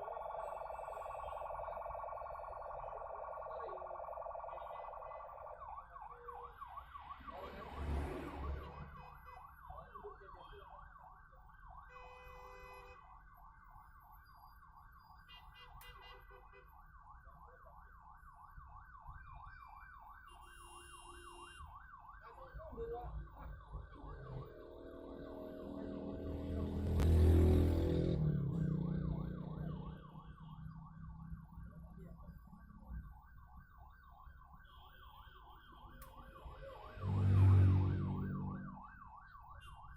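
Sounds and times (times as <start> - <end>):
siren warbling: 0.0 - 9.1, 21.7 - 39.9
vehicle engine passing: 24.4 - 29.6, 36.8 - 38.8.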